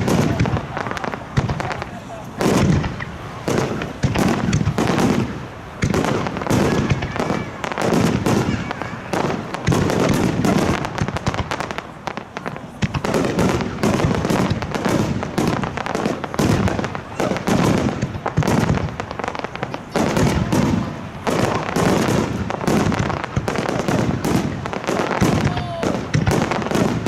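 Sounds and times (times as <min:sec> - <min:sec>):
firework shells booming: 0:00.0 - 0:27.0
fireworks crackling: 0:00.0 - 0:27.0.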